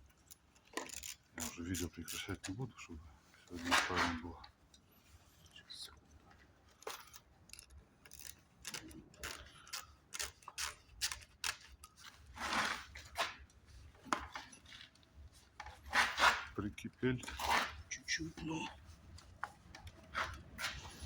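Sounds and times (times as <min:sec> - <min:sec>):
metallic clicks of hand tools: 0:06.8 - 0:12.0
metal scrape: 0:12.3 - 0:13.4, 0:15.8 - 0:16.6, 0:17.2 - 0:18.3.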